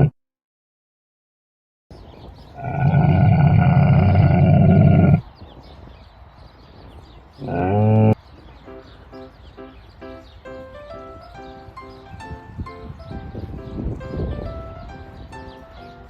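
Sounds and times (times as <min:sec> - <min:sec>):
animal calling: 0:02.6 - 0:05.2.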